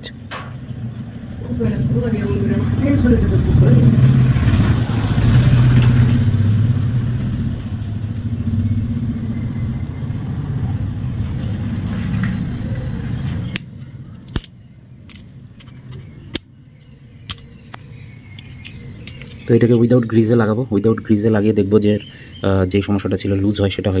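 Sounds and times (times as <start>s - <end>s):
vehicle engine humming: 0.0s - 21.9s
metallic clicks of handled parts: 9.8s - 11.0s, 12.9s - 19.5s.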